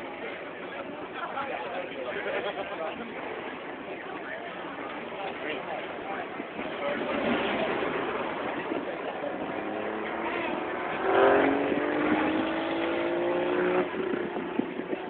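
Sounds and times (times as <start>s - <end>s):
truck engine revving under load: 7.1s - 14.6s.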